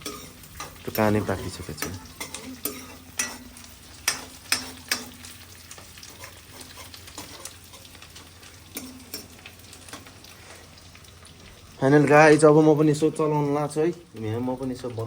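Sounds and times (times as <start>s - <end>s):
metal spoon scraping pan: 0.0s - 9.4s
onions sizzling in oil: 0.0s - 15.0s.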